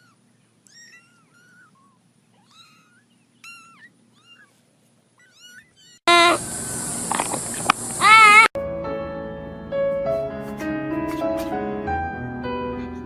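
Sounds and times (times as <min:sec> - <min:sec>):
kitten mewing: 0:05.2 - 0:06.4, 0:08.0 - 0:08.5
steady hiss: 0:06.1 - 0:08.5.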